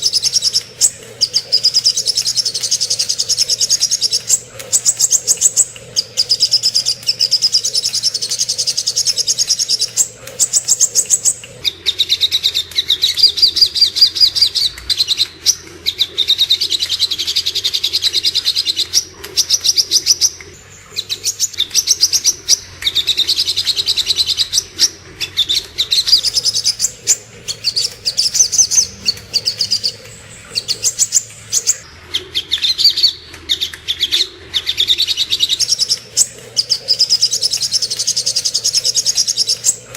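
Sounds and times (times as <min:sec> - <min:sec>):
sunbird chirping trills: 0:00.0 - 0:31.9, 0:34.9 - 0:39.9
faint low hum: 0:00.0 - 0:39.9.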